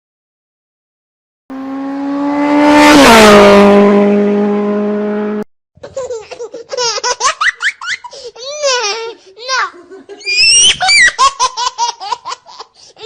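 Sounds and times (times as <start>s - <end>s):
motor vehicle passing by: 1.5s - 5.4s
high-pitched laughter: 5.8s - 13.0s.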